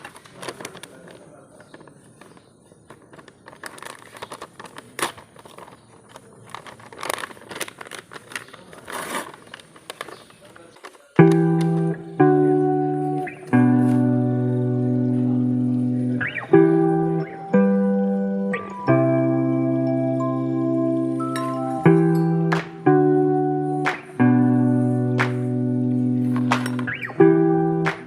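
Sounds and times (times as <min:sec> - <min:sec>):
guitar music: 0:11.2 - 0:28.0.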